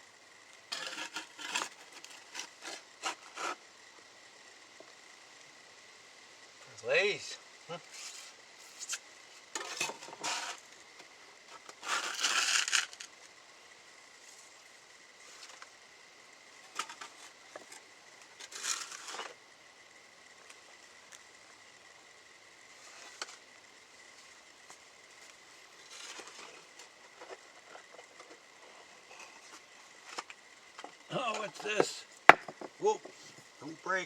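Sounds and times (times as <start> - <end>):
ash scraping on kiln floor: 0.7 - 3.6, 11.6 - 13.1.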